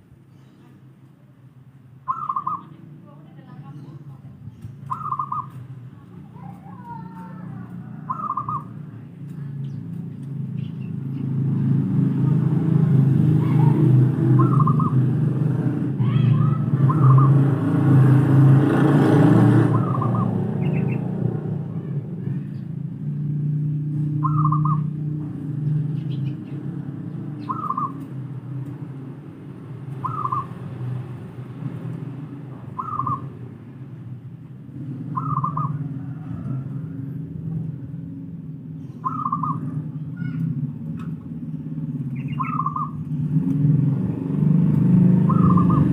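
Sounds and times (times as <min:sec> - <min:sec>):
doves cooing: 0:02.1 - 0:02.8, 0:04.8 - 0:05.6, 0:06.4 - 0:08.9, 0:13.4 - 0:15.3, 0:16.5 - 0:18.2, 0:19.5 - 0:22.4, 0:24.1 - 0:25.1, 0:26.0 - 0:28.4, 0:29.9 - 0:31.0, 0:32.7 - 0:33.5, 0:34.8 - 0:37.9, 0:39.0 - 0:40.0, 0:44.9 - 0:45.9.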